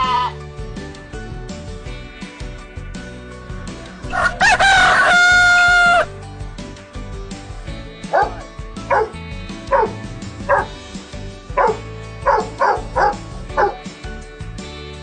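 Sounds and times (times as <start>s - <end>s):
background music: 0.0s - 15.0s
dog barking: 8.1s - 10.7s, 11.6s - 13.8s.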